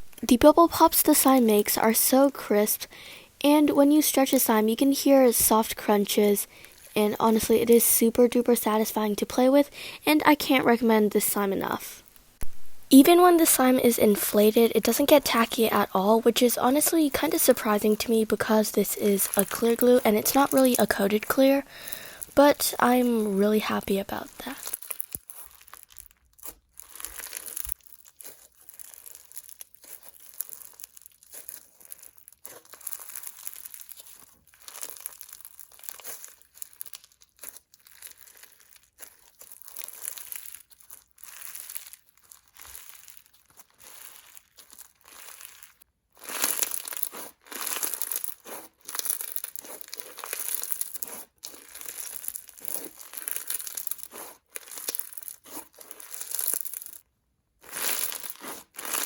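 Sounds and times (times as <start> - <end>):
slime crunching and popping: 6.5 - 7.0, 18.6 - 23.6, 24.3 - 59.0.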